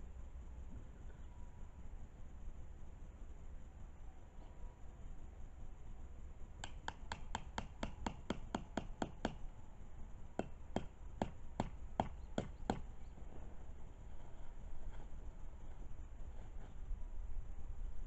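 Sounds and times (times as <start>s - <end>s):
sharp clicking taps: 6.6s - 9.4s, 10.4s - 12.9s.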